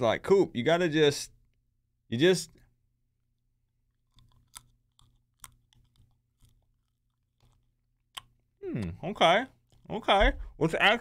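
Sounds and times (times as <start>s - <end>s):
chewing boiled peanut: 3.8s - 9.9s.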